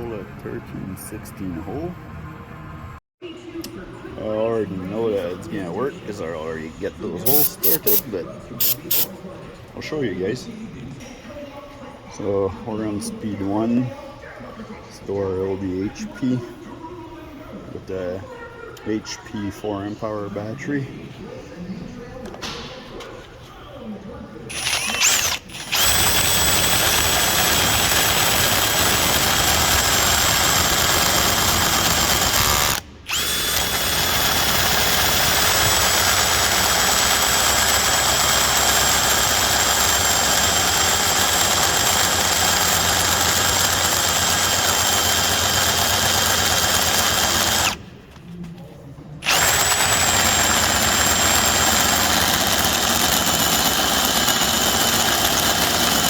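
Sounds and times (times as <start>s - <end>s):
cordless drill motor whining: 24.5s - 47.8s, 49.2s - 56.0s.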